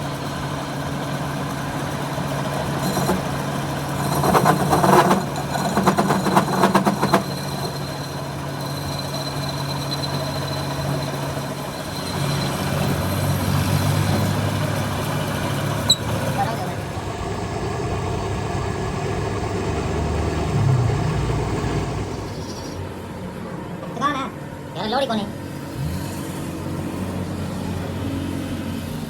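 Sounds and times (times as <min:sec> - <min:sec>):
truck engine idling: 0:00.0 - 0:25.7
rapid rattling: 0:02.8 - 0:12.2.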